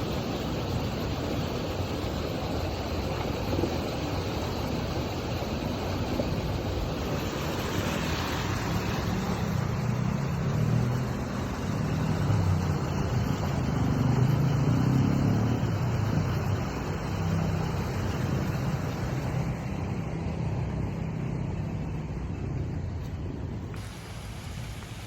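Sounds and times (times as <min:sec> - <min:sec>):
road traffic noise: 0:00.0 - 0:25.0
vehicle engine rumble: 0:00.0 - 0:25.0.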